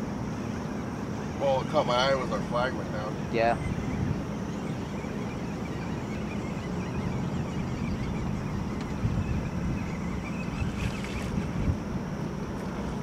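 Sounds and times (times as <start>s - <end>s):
boat motor running: 0.0s - 13.0s
wind buffeting microphone: 0.9s - 13.0s.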